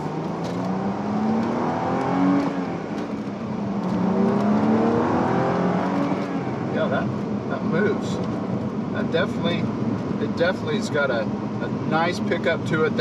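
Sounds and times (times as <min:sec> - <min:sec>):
car engine accelerating: 0:00.0 - 0:10.4.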